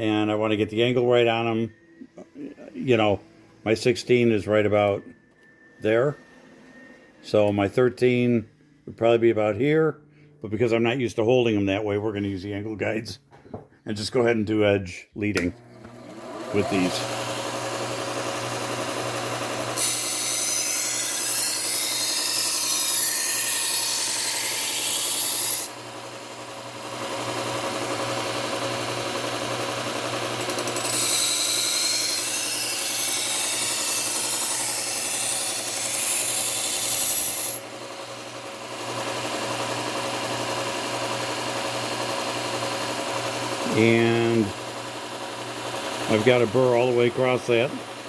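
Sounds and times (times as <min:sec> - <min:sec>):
belt sander motor hum: 0:15.4 - 0:48.0.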